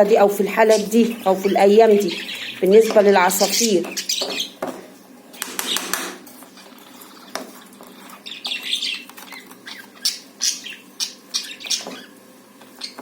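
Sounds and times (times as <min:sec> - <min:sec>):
caged birds chirping and squawking: 0:00.0 - 0:13.0
sharp clicks: 0:05.4 - 0:06.2.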